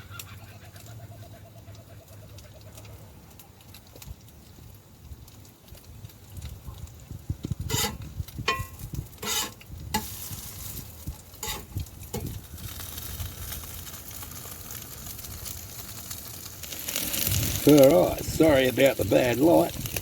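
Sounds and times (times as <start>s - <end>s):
hash browns sizzling in a pan: 0.0s - 20.0s
utensil scraping a pan: 7.6s - 12.9s, 16.6s - 20.0s.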